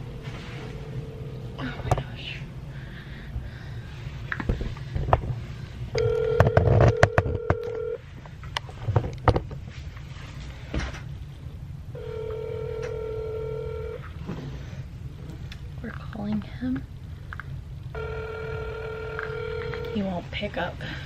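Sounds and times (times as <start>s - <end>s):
phone ring tones: 6.0s - 8.0s, 12.0s - 14.0s, 18.0s - 20.0s.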